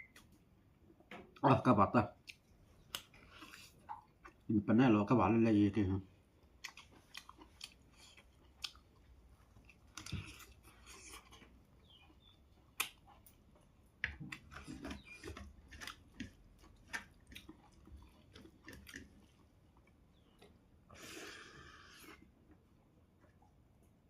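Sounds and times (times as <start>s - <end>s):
person chewing: 2.2s - 4.5s, 6.2s - 22.6s.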